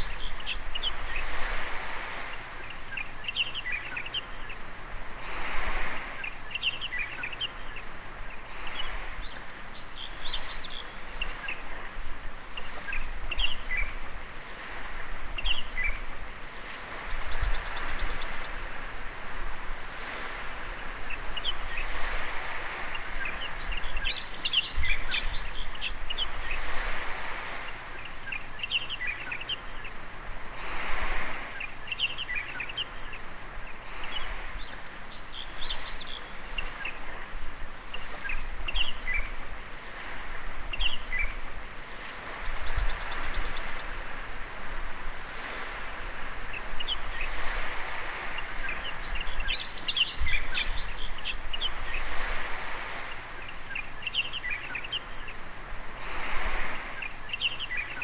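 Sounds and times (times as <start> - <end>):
birds chirping: 0.0 - 5.0, 5.6 - 58.0
waves washing on shore: 0.0 - 58.0.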